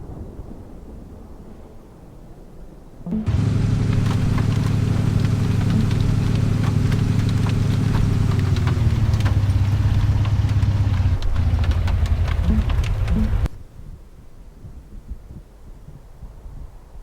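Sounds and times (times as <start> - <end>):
vehicle engine idling: 3.1 - 13.6
light ticks: 3.3 - 13.6.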